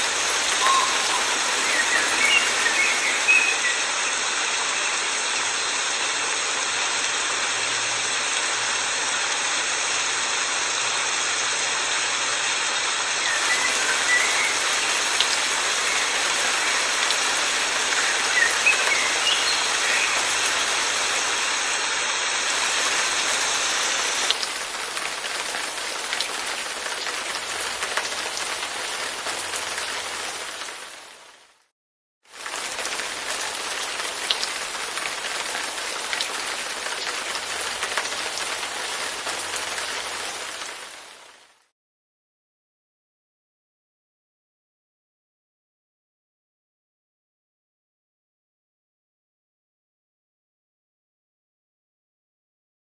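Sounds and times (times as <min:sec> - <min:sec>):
steady rain falling: 0:00.0 - 0:31.7, 0:32.3 - 0:41.7.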